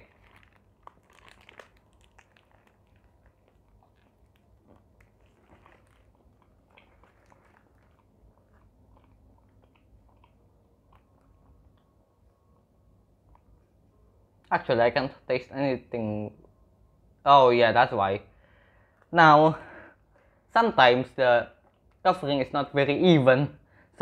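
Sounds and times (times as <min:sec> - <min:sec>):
bite into crispy chicken: 0:00.0 - 0:10.4
faint crunchy chewing: 0:00.0 - 0:14.5.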